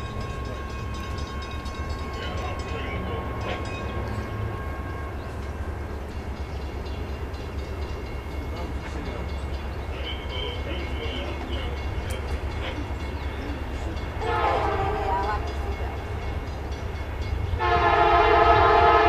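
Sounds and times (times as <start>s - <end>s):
locomotive engines rumbling: 0.0s - 19.0s
train air horn: 14.2s - 15.5s, 17.6s - 19.0s.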